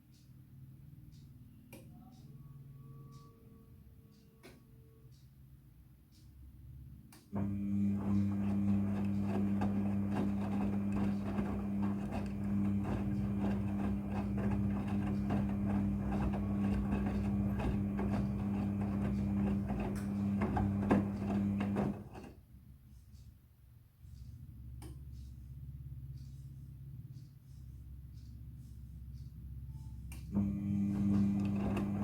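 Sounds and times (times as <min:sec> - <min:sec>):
washing machine hum: 0:07.3 - 0:22.5, 0:24.1 - 0:32.0.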